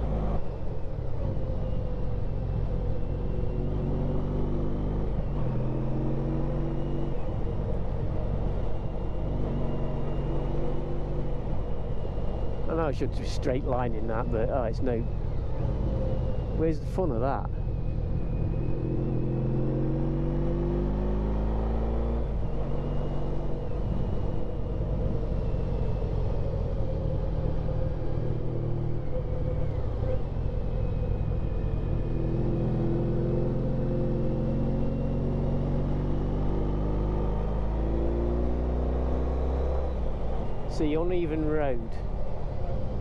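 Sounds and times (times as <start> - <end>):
motorcycle engine revving: 17.6 - 41.8.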